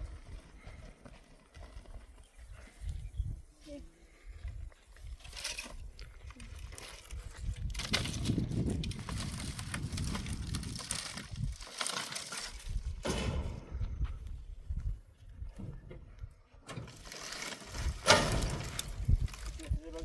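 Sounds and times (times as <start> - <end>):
crackling and rustling: 5.1 - 14.3, 15.3 - 20.0.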